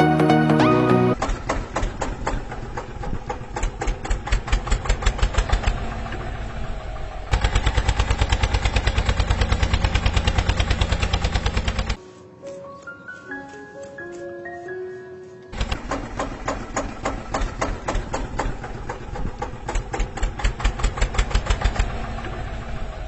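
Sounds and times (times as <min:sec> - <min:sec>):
small engine knocking: 0:01.2 - 0:12.0, 0:15.5 - 0:23.0.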